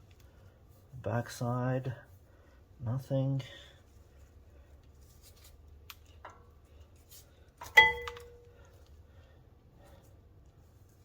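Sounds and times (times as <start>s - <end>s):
sharp metallic clink: 7.8s - 8.4s.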